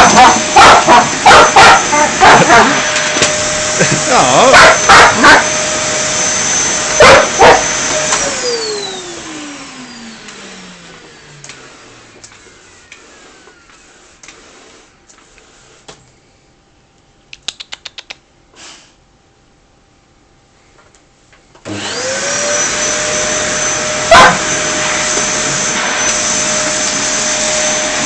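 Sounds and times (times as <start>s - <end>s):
dog barking sharply: 0.0s - 2.8s, 4.5s - 5.5s, 7.0s - 7.7s, 24.1s - 24.5s
vacuum motor winding down: 0.0s - 14.0s, 21.6s - 28.0s
vacuum cleaner whining: 0.0s - 16.0s, 21.6s - 28.0s.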